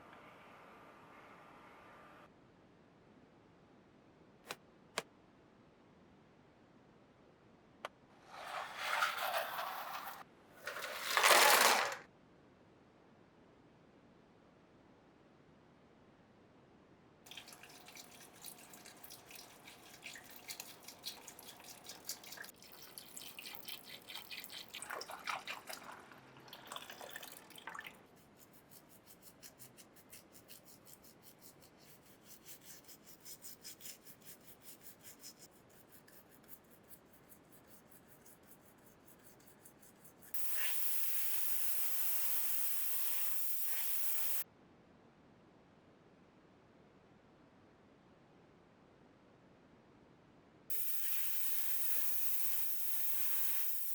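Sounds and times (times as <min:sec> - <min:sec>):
scraping on hard surface: 0:08.2 - 0:12.0
loud spray hiss: 0:40.4 - 0:44.4, 0:50.7 - 0:53.9.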